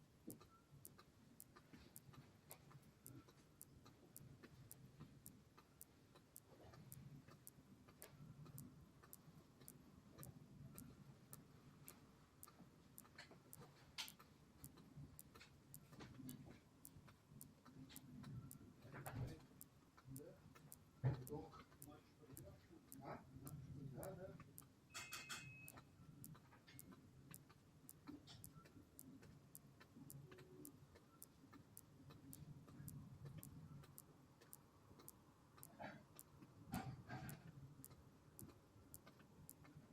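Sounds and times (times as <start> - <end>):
faint even ticking: 0.0 - 39.9.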